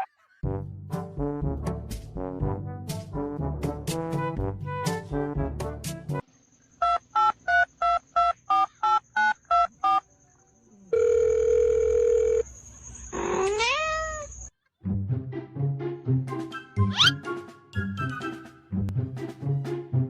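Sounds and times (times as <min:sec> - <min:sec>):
phone ringing tone: 0:10.9 - 0:12.5
cat meowing: 0:13.2 - 0:14.5.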